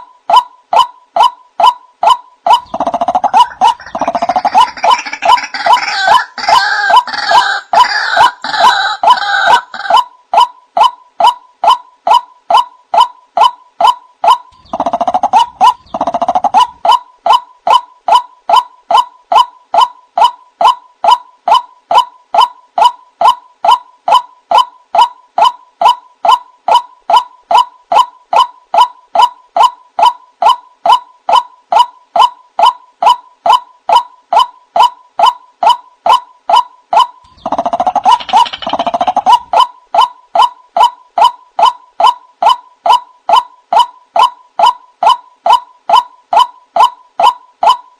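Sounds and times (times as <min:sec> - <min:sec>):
waterhen calling: 0:02.5 - 0:10.9.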